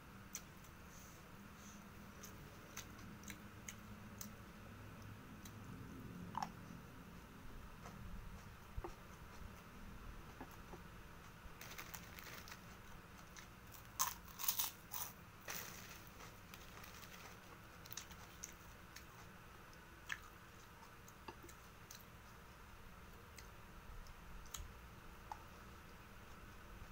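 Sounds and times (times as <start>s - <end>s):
chewing and eating: 2.1s - 4.4s, 10.3s - 22.6s
cracker crunching: 11.6s - 19.3s.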